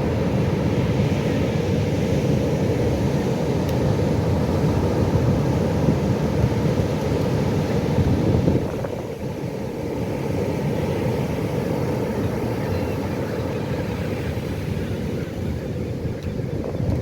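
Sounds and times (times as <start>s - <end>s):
breaking waves rumble: 0.0s - 17.0s.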